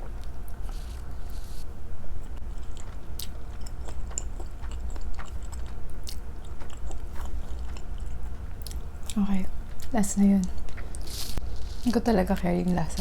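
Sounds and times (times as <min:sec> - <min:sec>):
chewing food: 0:02.3 - 0:13.0.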